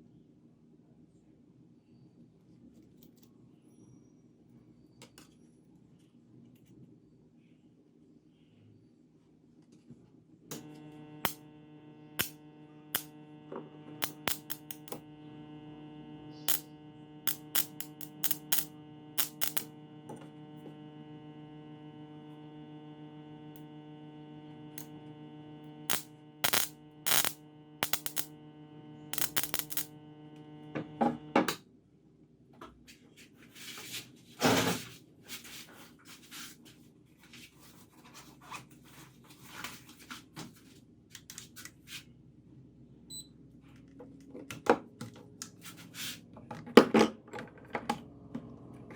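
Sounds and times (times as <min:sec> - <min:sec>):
spot welder transformer hum: 0:10.5 - 0:31.6
sharp clicks and snaps: 0:12.2 - 0:13.2, 0:14.0 - 0:15.1, 0:16.4 - 0:20.3, 0:25.9 - 0:28.4, 0:29.1 - 0:30.5.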